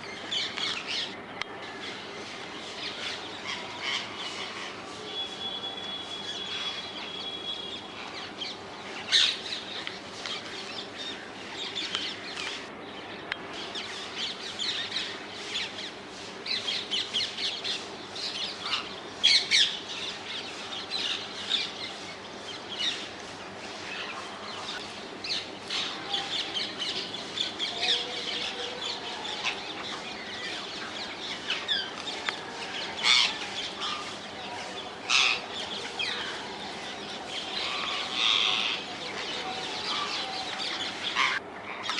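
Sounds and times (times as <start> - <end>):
parakeets screeching: 32.9 - 34.2, 35.1 - 36.4, 37.4 - 41.9.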